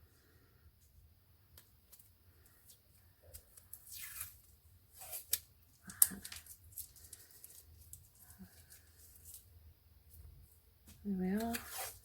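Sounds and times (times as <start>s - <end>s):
tape pulled from roll: 3.6s - 7.6s, 11.4s - 12.0s.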